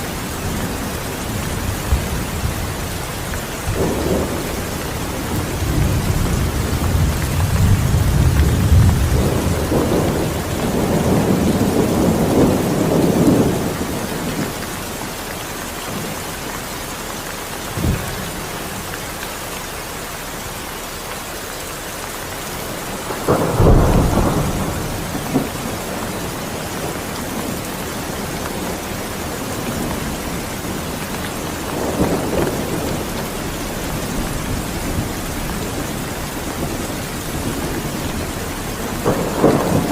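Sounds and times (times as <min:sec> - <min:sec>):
thunder rumbling: 0:00.0 - 0:15.2, 0:17.7 - 0:18.9, 0:22.1 - 0:39.9
heavy rain: 0:00.0 - 0:39.9
sharp thunder crack: 0:03.6 - 0:14.0, 0:23.0 - 0:27.6, 0:38.8 - 0:39.9.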